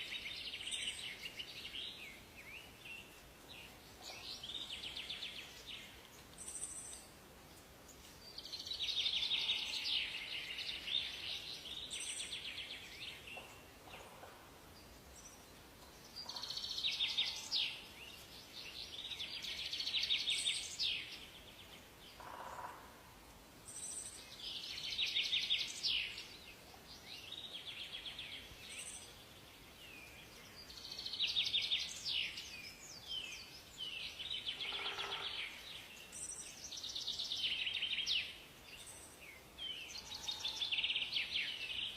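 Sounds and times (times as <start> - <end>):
faint background hiss: 0.0 - 41.9
songbird trilling and warbling: 30.0 - 41.9.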